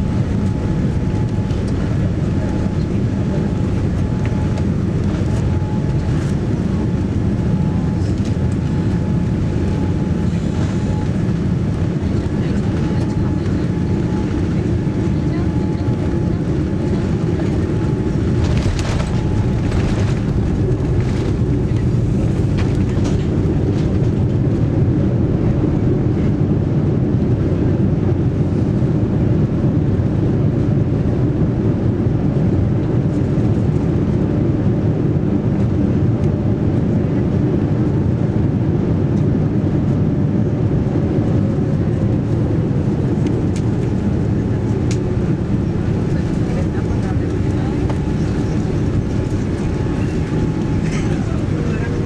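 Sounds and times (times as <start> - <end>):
airliner cabin rumble: 0.0 - 52.0.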